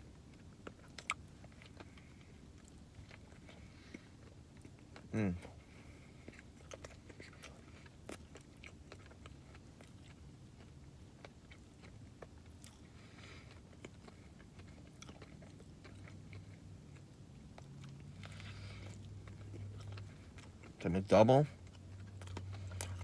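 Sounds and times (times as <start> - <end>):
low steady hum: 0.0 - 23.0
chewing and mouth smacks: 0.3 - 5.1, 6.2 - 20.8, 21.6 - 23.0.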